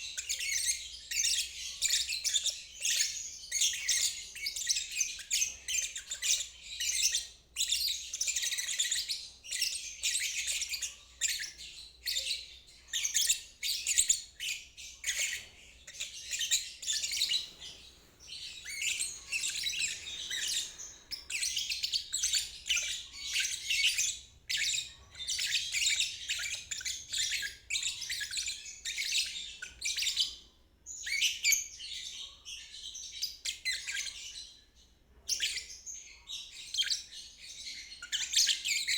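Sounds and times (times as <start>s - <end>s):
lovebird chattering warble: 17.0s - 21.7s.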